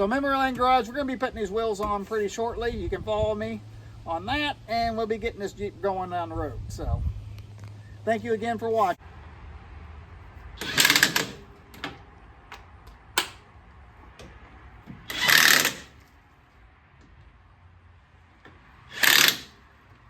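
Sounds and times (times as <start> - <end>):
impact wrench hammering: 10.6 - 11.5, 14.9 - 16.0, 18.5 - 19.6
sharp clicks: 10.6 - 13.5, 18.4 - 19.6.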